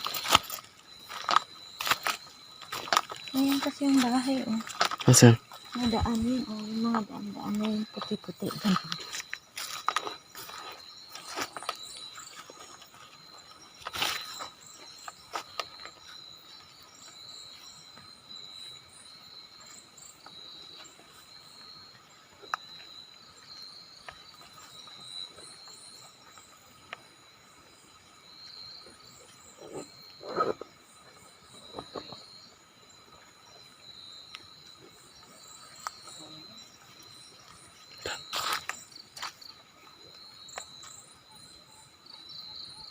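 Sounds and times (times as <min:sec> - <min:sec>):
knocks and crunches: 0:00.0 - 0:03.2
insects chirping: 0:00.0 - 0:42.9.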